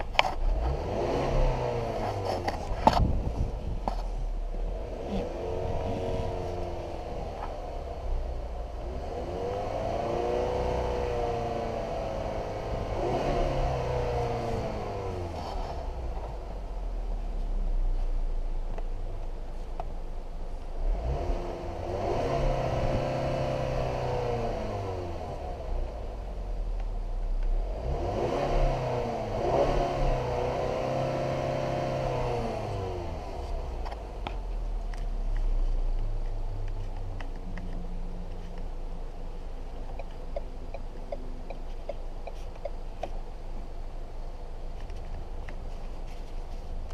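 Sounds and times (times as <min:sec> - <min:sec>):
car engine revving: 0:00.0 - 0:18.0, 0:20.8 - 0:26.8, 0:27.4 - 0:46.9.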